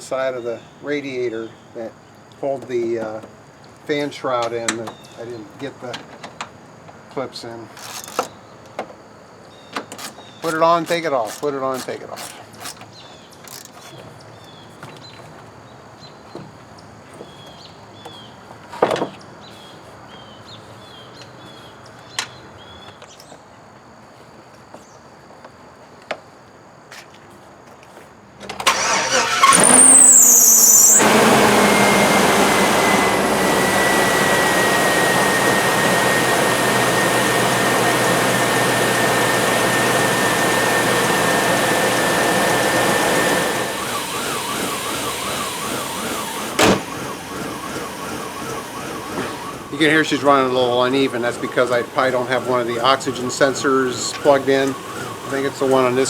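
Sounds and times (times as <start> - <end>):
car engine cranking and idling: 28.6 - 56.0
engine whine: 28.7 - 56.0.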